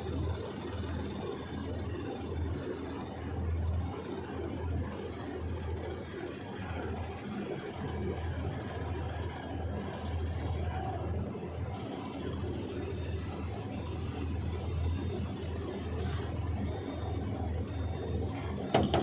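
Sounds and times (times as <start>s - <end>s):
excavator diesel engine working: 0.0s - 19.0s.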